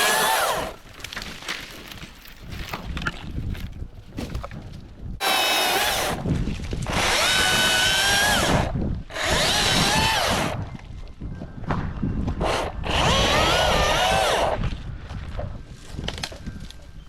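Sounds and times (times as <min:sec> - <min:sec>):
electric chainsaw whine: 0:05.2 - 0:06.2, 0:06.8 - 0:10.6, 0:12.4 - 0:14.6.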